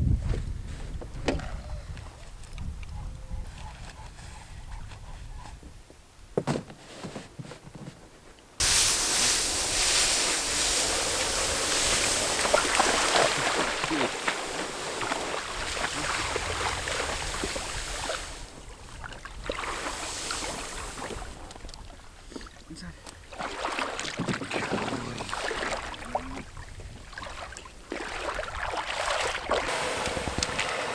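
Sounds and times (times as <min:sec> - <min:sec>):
rushing splashing water: 0:08.6 - 0:21.5, 0:27.2 - 0:30.9.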